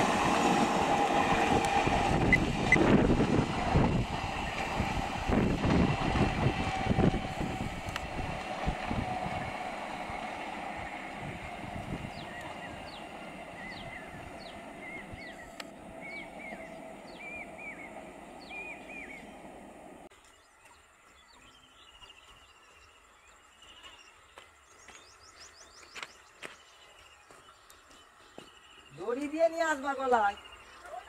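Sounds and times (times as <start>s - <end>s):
bird chirping: 12.1s - 19.6s.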